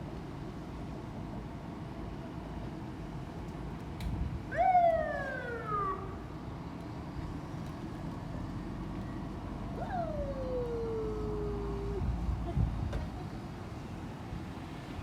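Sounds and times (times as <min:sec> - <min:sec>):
wailing animal calls: 0:09.8 - 0:12.0.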